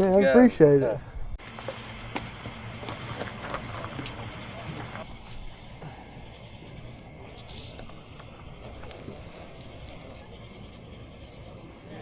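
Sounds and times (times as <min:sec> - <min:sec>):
night insects droning: 0:00.0 - 0:12.0
short hiss: 0:06.8 - 0:10.4.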